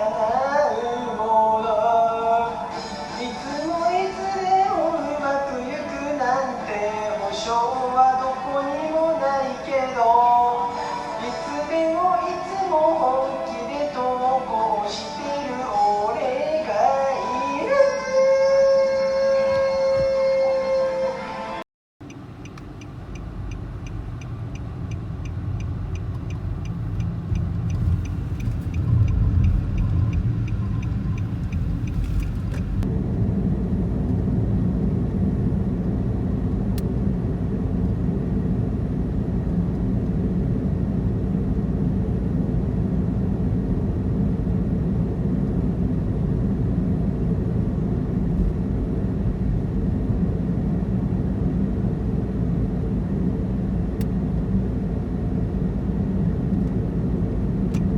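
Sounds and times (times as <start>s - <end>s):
car engine and road noise: 22.0s - 57.9s
fast regular ticking: 22.1s - 32.8s.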